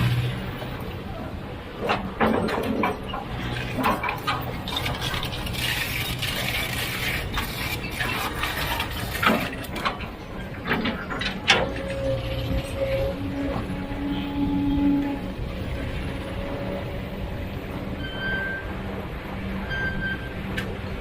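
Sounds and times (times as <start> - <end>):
low engine hum: 0.0 - 2.2
rush of gritty noise: 0.0 - 21.0
metallic clanks and knocks: 1.8 - 5.4, 8.0 - 12.2.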